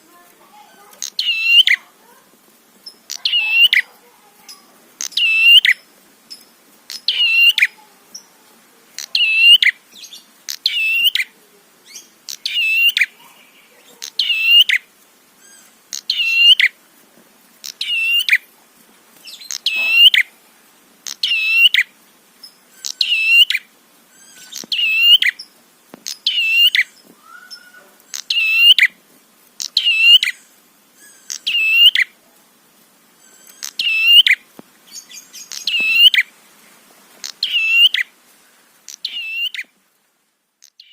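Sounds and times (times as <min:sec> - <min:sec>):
songbird sharp chirping call: 0:00.7 - 0:01.9, 0:02.8 - 0:08.3, 0:09.0 - 0:16.8, 0:17.6 - 0:18.4, 0:19.2 - 0:20.3, 0:21.0 - 0:29.0, 0:29.6 - 0:32.2, 0:33.2 - 0:36.3, 0:37.2 - 0:38.1, 0:38.9 - 0:39.8, 0:40.6 - 0:40.9.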